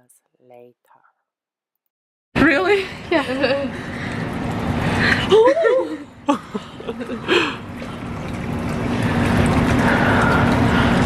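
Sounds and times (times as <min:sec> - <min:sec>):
low pump hum: 0:02.4 - 0:11.0
water running and trickling: 0:02.5 - 0:11.0.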